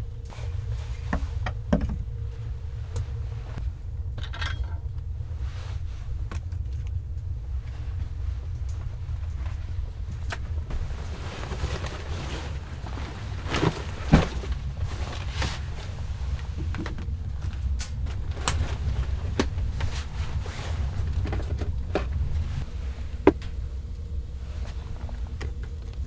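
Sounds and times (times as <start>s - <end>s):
handling knocks and clicks: 8.7s - 23.6s.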